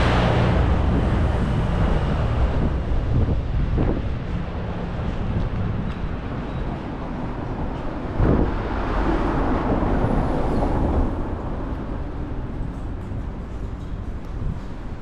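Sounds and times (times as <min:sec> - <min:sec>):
loud rushing swell: 0:00.0 - 0:03.8
city street noise: 0:00.0 - 0:15.0
wind: 0:00.0 - 0:15.0.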